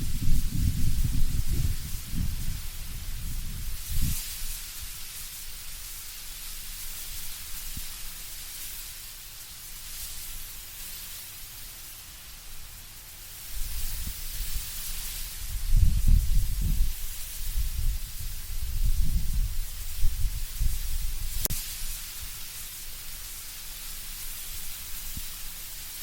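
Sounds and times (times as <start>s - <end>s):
low wind rumble: 0.0s - 5.0s, 13.6s - 21.5s
leaves rustling in wind: 0.0s - 26.0s.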